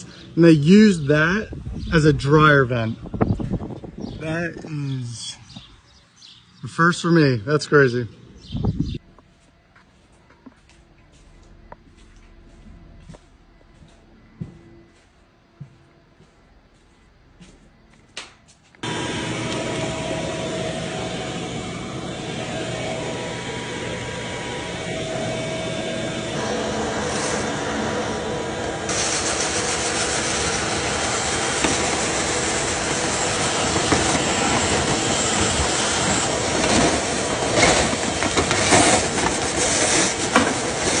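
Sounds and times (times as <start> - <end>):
vent cleaning equipment rushing air: 18.8 - 41.0.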